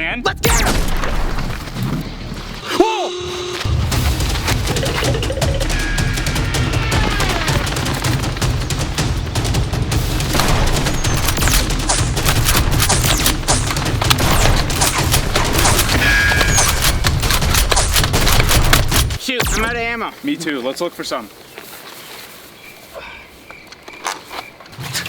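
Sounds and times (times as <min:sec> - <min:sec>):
action music: 0:00.0 - 0:20.0.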